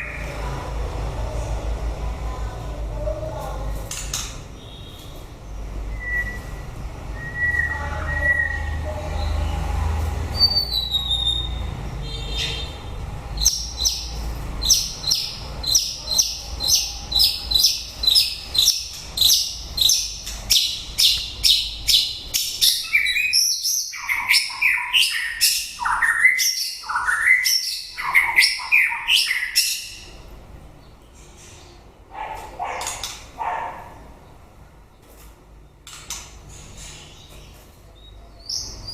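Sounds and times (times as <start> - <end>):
songbird singing whistled phrases: 5.9 - 6.6, 7.2 - 9.4, 10.4 - 11.6, 13.4 - 29.9.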